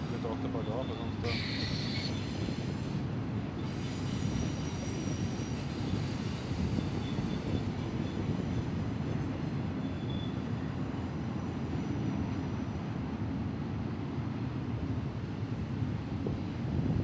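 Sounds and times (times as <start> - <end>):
freight train rumbling past: 0.0 - 17.0.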